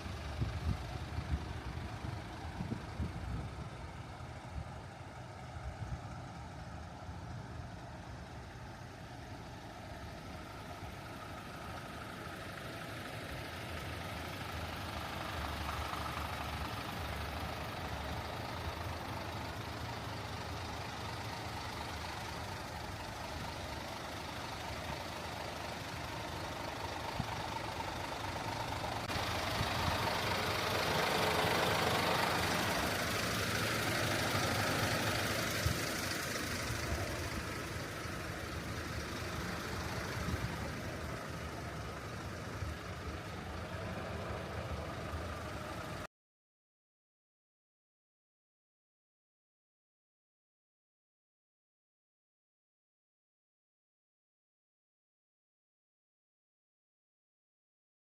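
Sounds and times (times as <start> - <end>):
truck diesel engine idling: 0.0 - 46.1.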